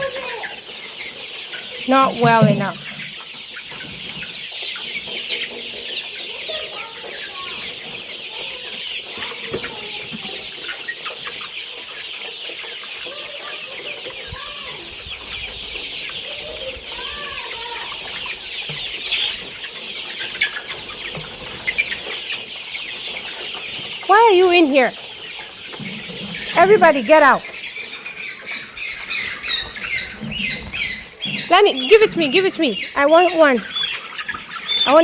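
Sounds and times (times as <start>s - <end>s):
chicks peeping and chirping: 0.0s - 35.0s
low clucks: 1.9s - 4.2s, 25.6s - 27.8s.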